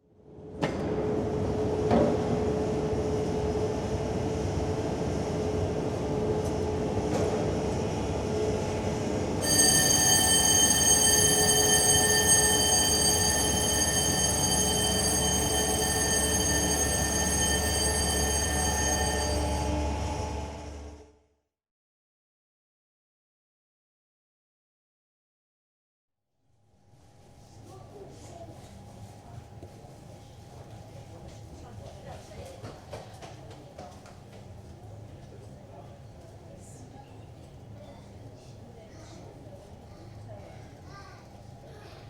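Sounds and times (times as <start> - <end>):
high steady whine: 9.4 - 19.8
ship engines rumbling: 9.4 - 19.8.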